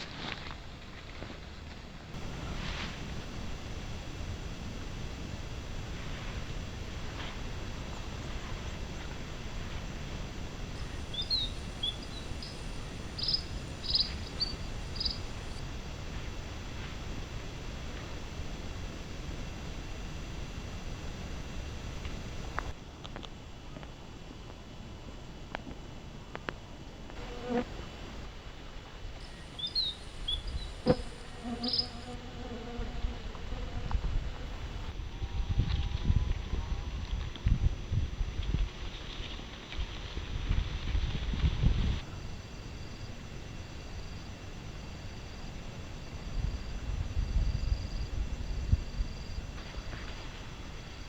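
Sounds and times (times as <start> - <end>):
flying insect buzzing: 2.2 - 22.8, 27.2 - 28.4, 29.2 - 35.0
wind noise on microphone: 2.2 - 22.8, 29.3 - 51.0
small bird chirping and trilling: 10.8 - 15.2.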